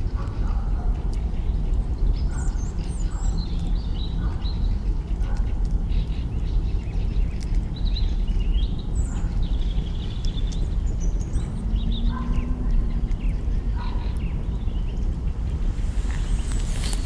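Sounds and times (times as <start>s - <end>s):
campfire crackling: 15.0s - 17.0s
low rumble: 15.0s - 17.0s.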